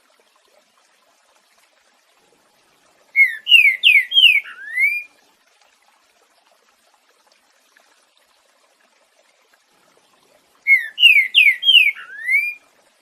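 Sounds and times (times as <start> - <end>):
bird singing whistled notes: 3.2 - 5.1, 10.7 - 12.6.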